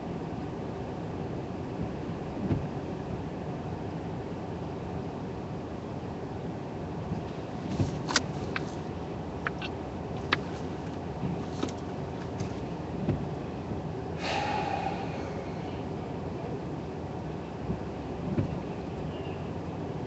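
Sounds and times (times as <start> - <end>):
car road noise rumble: 0.0 - 20.0
rushing hiss: 14.2 - 15.8.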